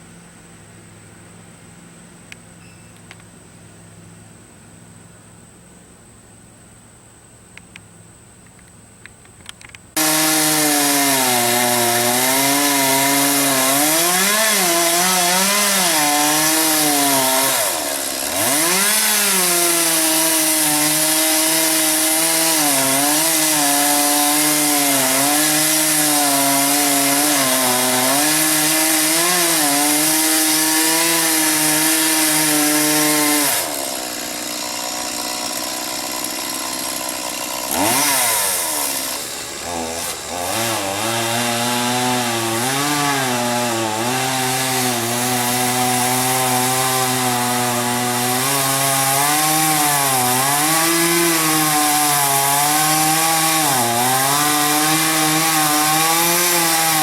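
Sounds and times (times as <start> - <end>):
chainsaw cutting at high revs: 9.9 - 57.0.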